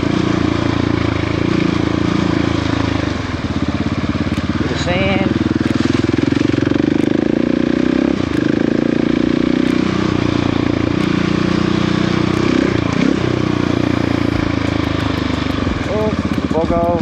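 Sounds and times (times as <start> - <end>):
motorcycle engine revving: 0.0 - 17.0
steady rush of noise: 11.0 - 17.0.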